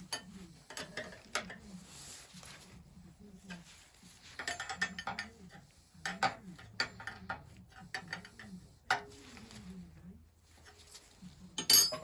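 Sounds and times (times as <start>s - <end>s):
metal tools clicking and knocking: 4.4s - 9.1s, 11.6s - 12.0s
metal parts clattering: 11.6s - 12.0s.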